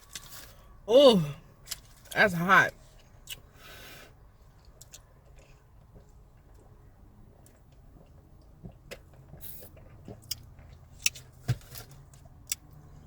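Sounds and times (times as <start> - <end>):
crunchy chewing: 4.4 - 6.8, 7.4 - 13.0.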